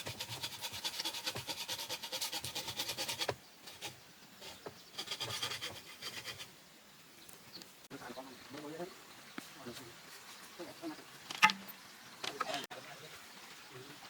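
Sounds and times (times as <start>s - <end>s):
tool rasping bamboo: 0.0s - 6.5s.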